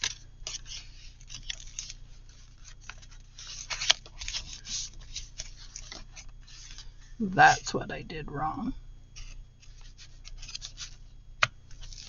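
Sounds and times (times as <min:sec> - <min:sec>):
cardstock rustling and scraping: 0:00.0 - 0:06.9, 0:09.2 - 0:11.1, 0:11.7 - 0:12.0.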